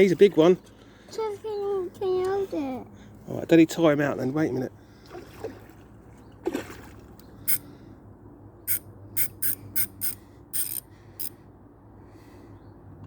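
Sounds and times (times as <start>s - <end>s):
fishing reel clicking: 8.7s - 11.4s.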